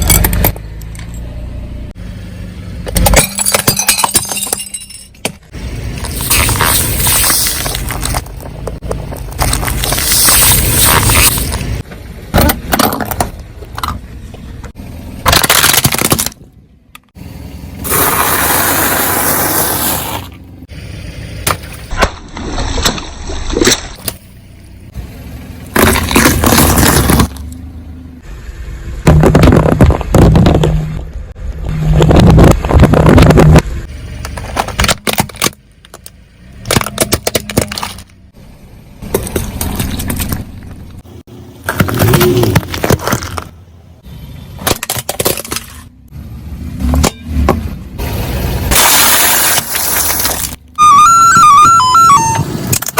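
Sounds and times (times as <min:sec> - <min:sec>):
car running: 0:00.0 - 0:52.9
tyres crushing containers: 0:15.2 - 0:16.5, 0:25.7 - 0:27.4, 0:41.6 - 0:43.6.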